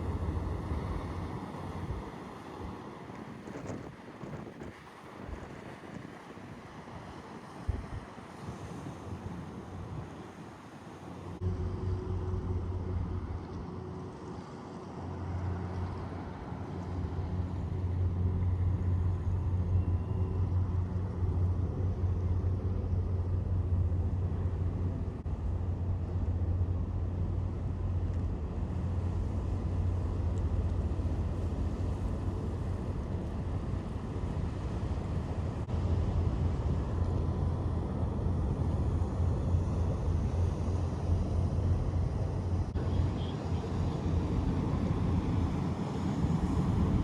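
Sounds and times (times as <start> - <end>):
low engine rumble: 11.2 - 47.0.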